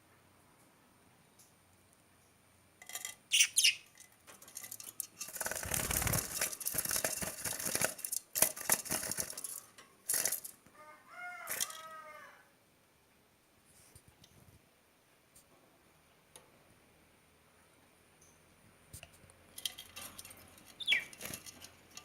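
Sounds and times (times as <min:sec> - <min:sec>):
short high bird chirps: 0:03.3 - 0:03.9, 0:20.8 - 0:21.2
birds flapping wings: 0:05.2 - 0:10.4, 0:20.8 - 0:21.7.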